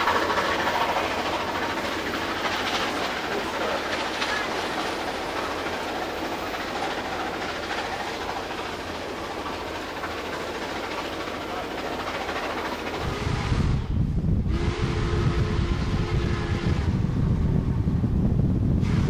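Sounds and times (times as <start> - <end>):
train wheels rumbling on rails: 0.0 - 19.0
air rushing past a window: 13.0 - 19.0.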